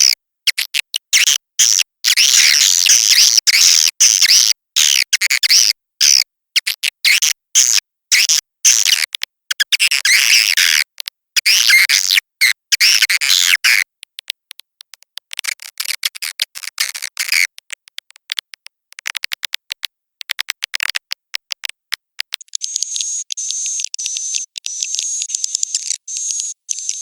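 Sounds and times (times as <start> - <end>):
swiftlets twittering and clicking: 22.2 - 27.0
high buzzing trill: 22.6 - 27.0.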